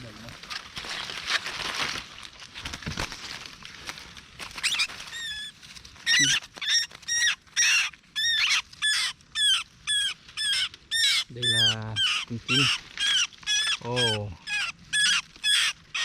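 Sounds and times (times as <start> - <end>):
rustling in undergrowth: 0.0 - 16.0
bird distress squeals: 4.6 - 16.0.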